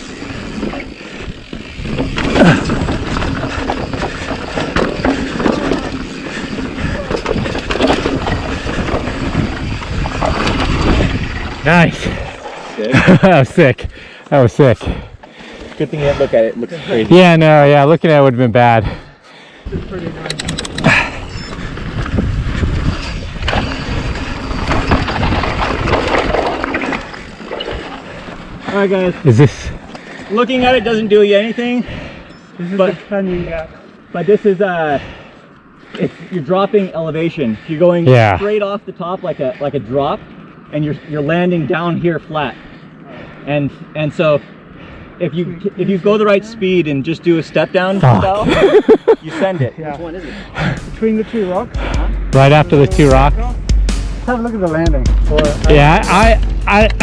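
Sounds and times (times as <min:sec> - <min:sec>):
bike clattering and knocking: 0:00.0 - 0:11.3
tyres grinding over dirt and rock: 0:00.0 - 0:13.7, 0:19.7 - 0:31.8
wind rumble on microphone: 0:06.7 - 0:12.4, 0:19.7 - 0:28.6
low steady rumble: 0:50.0 - 0:57.0.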